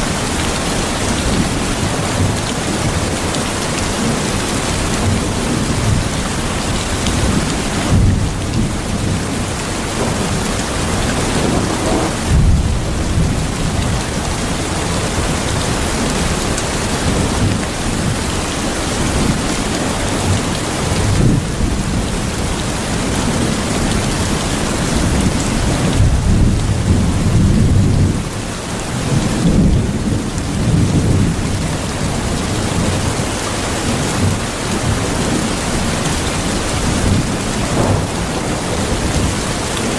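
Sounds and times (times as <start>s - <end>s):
heavy rain falling: 0.0s - 39.9s
low rolls of thunder: 7.2s - 15.4s, 36.8s - 39.9s.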